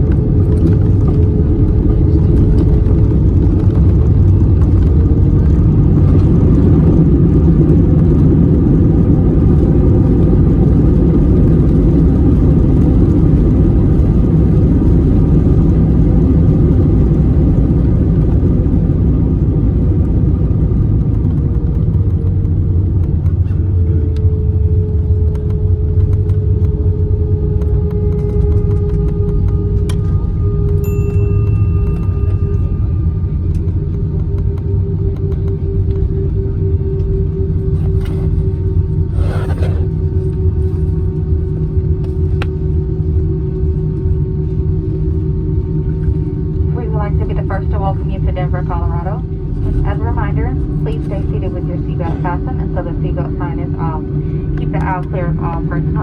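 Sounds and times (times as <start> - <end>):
jet engine and airflow roar: 0.0 - 56.0
faint steady hum: 23.2 - 56.0.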